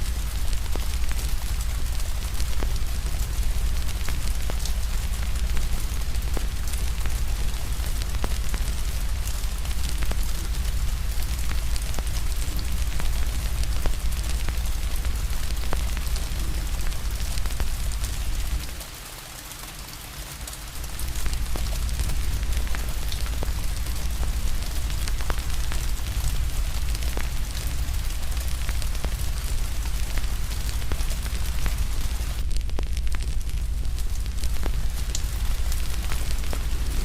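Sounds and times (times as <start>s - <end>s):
fire crackling and popping: 0.0s - 19.0s, 19.9s - 37.0s
steady rain hiss: 0.0s - 37.0s
deep low rumble: 21.0s - 37.0s.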